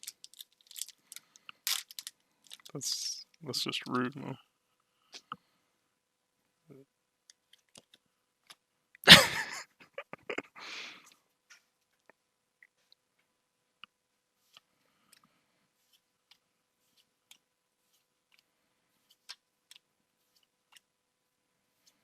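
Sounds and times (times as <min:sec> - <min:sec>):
trading cards being flipped through: 0:15.8 - 0:20.8.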